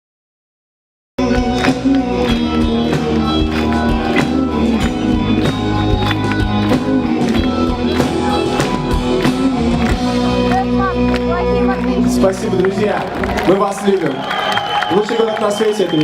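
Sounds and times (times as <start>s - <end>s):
amplified guitar chords: 1.2s - 13.4s.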